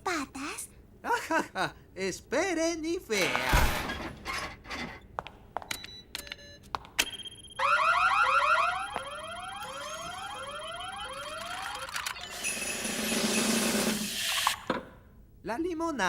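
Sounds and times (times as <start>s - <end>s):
steady high tone: 7.5s - 12.4s
rising alarm whoop: 7.6s - 11.9s.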